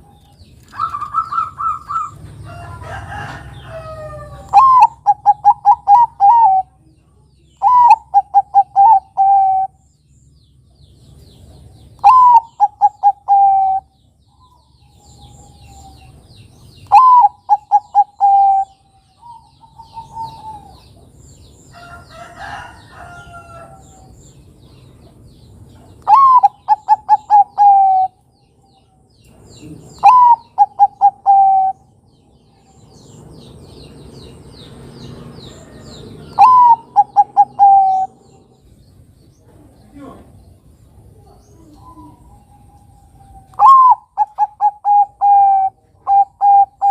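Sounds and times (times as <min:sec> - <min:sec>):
rough noisy bird call: 0:00.0 - 0:06.7, 0:11.1 - 0:46.9
dove cooing: 0:00.7 - 0:02.3, 0:03.2 - 0:06.8, 0:07.6 - 0:09.8, 0:12.0 - 0:13.9, 0:16.8 - 0:21.0, 0:26.0 - 0:28.2, 0:29.6 - 0:31.9, 0:35.6 - 0:38.4, 0:41.1 - 0:46.9
faint bird chirps: 0:35.5 - 0:46.9.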